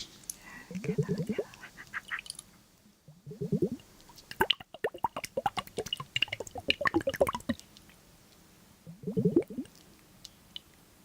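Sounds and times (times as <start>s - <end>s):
small wet clicks and pops: 3.9s - 8.4s.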